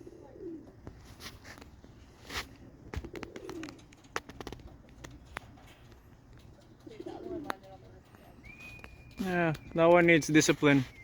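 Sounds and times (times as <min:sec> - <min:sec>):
pigeons cooing: 0:00.0 - 0:00.9, 0:02.6 - 0:09.8.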